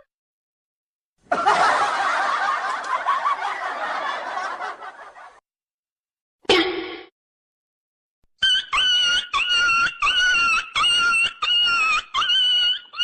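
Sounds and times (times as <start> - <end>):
people laughing: 1.2 - 5.4.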